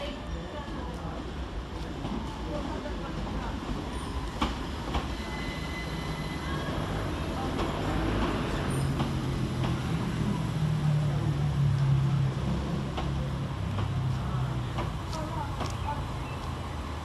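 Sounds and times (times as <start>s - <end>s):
train running noise: 0.0s - 17.0s
high wheel squeal: 5.0s - 7.3s.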